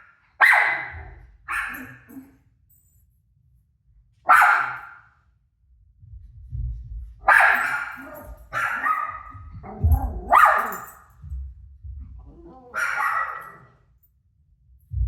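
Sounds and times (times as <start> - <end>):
dog barking: 0.0 - 2.4, 4.3 - 5.1, 7.2 - 11.0, 12.6 - 13.8.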